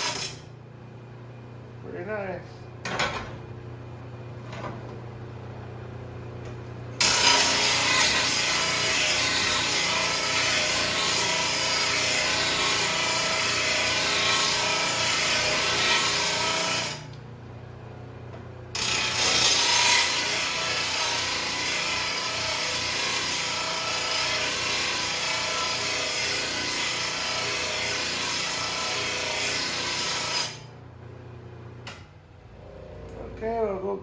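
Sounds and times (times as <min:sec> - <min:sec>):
grinder rasping against blade: 0:18.8 - 0:30.7.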